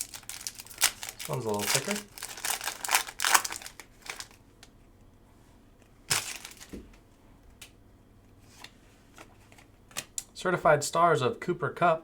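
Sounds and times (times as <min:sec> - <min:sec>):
wrapper crinkling and tearing: 0:00.0 - 0:04.4, 0:06.1 - 0:06.7.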